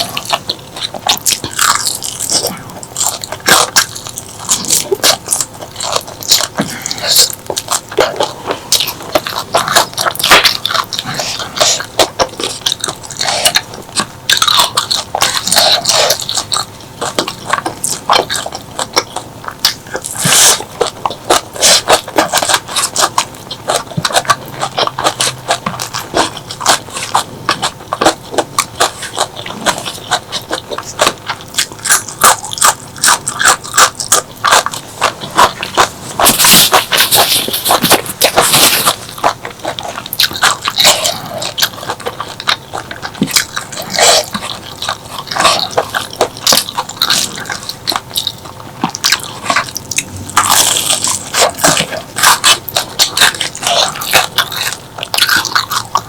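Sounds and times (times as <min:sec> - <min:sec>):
chewing and crunching food: 0:00.0 - 0:56.0
wet mouth clicks: 0:32.0 - 0:56.0.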